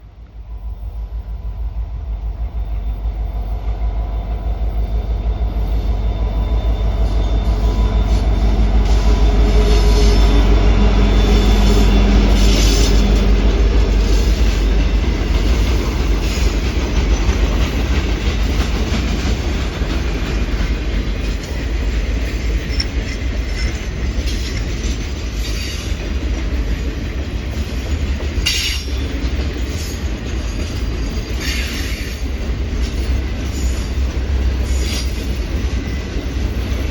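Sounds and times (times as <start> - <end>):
freight train rumbling past: 0.0 - 36.9
train engine tone: 0.0 - 36.9
wheels rolling on rail: 0.0 - 36.9
wheel squeals: 5.5 - 13.3.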